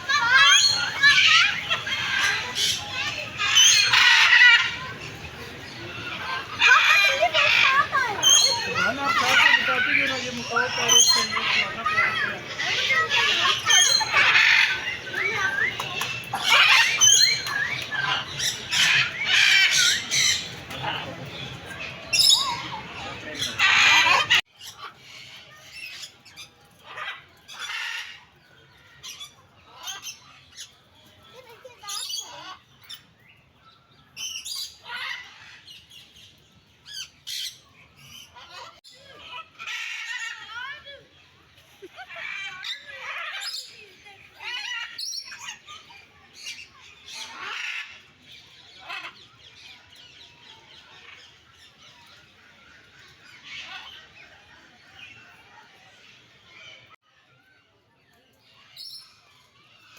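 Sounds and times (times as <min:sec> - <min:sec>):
birds squawking: 0:00.0 - 0:26.0, 0:41.7 - 0:57.0.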